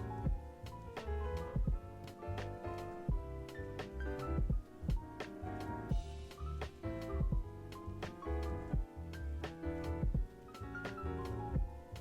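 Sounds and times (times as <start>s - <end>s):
bass: 0.0s - 12.0s
light jazz tune: 0.0s - 12.0s
piano: 0.0s - 12.0s
drum beat: 1.6s - 1.8s, 4.4s - 5.3s, 5.9s - 7.6s, 10.0s - 10.4s.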